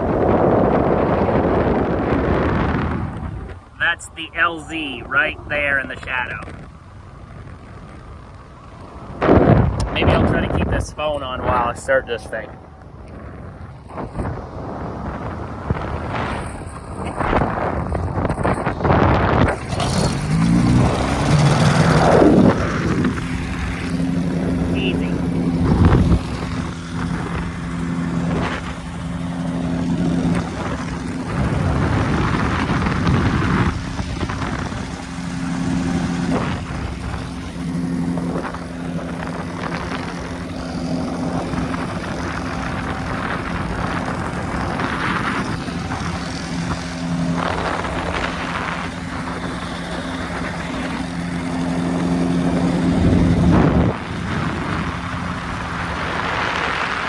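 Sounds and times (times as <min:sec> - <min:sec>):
ultralight engine and propeller: 0:00.0 - 0:57.0
wind noise on microphone: 0:00.0 - 0:57.0.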